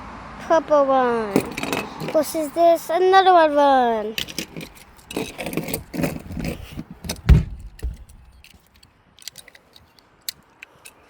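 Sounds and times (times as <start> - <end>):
toy trucks clattering and clicking: 1.3 - 2.8, 3.8 - 11.0
heavier thump: 7.1 - 8.4.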